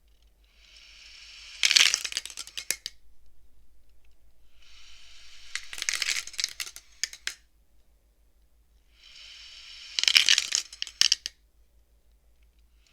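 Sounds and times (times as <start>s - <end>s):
abacus beads sliding and clacking: 0.1s - 3.0s, 3.9s - 7.4s, 9.0s - 11.4s.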